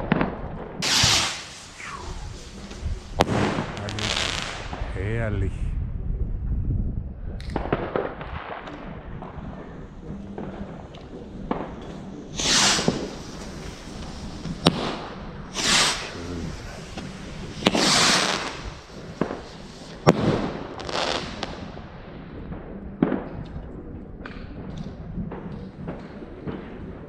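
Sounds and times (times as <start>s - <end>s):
fireworks hissing bursts: 0.8s - 5.0s, 9.8s - 21.7s
fireworks bangs: 0.8s - 5.2s, 7.6s - 23.4s.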